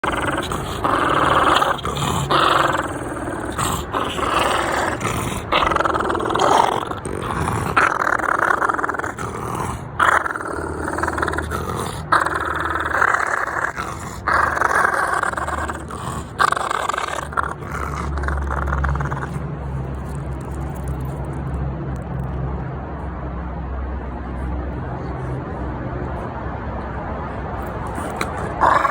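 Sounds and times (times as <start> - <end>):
dog growling: 0.0 - 21.3, 27.6 - 28.9.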